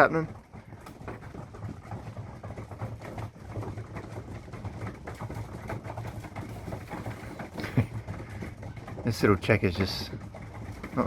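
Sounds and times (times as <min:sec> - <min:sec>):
pigeons cooing: 0:05.4 - 0:08.9.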